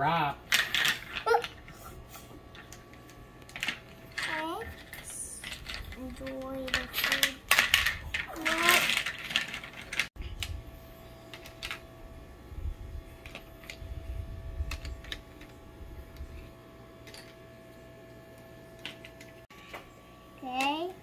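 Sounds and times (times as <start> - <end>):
plastic toys clicking and tapping: 0.5 - 1.8, 2.5 - 10.6, 11.3 - 11.8.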